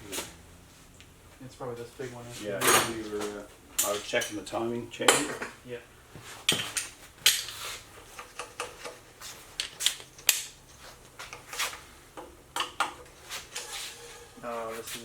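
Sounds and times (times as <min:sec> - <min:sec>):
metal tools clinking: 0:02.6 - 0:04.5, 0:12.6 - 0:14.5.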